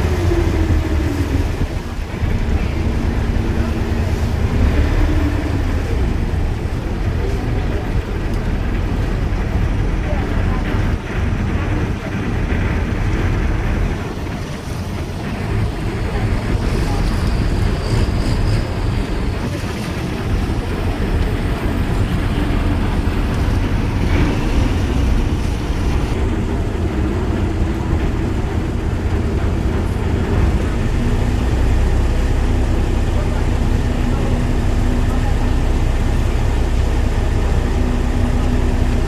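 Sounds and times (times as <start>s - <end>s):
steady low hum: 0.0s - 14.0s
engine rumbling: 0.0s - 39.0s
wind buffeting microphone: 0.0s - 39.0s.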